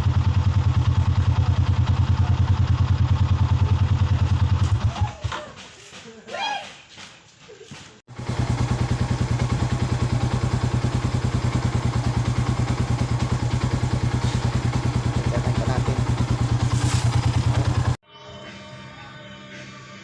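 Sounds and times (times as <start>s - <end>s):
motorcycle engine idling: 0.0s - 5.4s, 8.1s - 18.0s.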